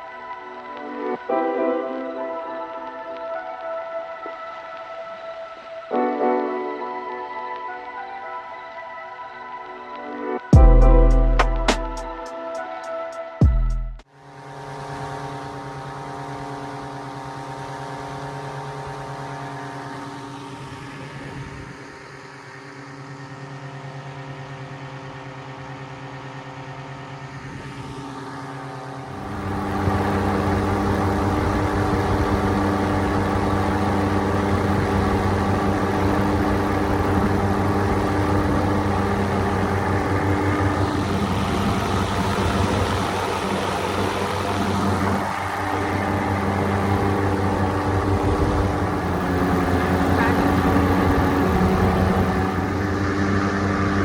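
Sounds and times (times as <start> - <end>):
two-stroke engine running: 14.1 - 54.0.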